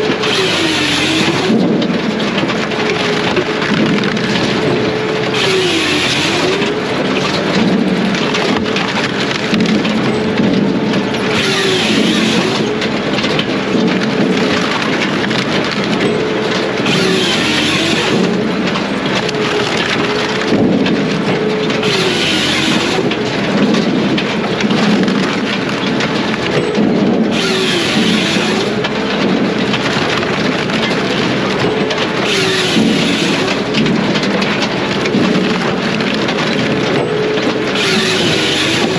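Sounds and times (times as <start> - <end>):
saw rasping through log: 0.0 - 1.7, 3.8 - 7.5, 11.2 - 13.0, 16.7 - 18.6, 21.7 - 23.4, 27.3 - 29.0, 32.1 - 33.9, 37.6 - 38.9
firewood processor whine: 0.0 - 38.9.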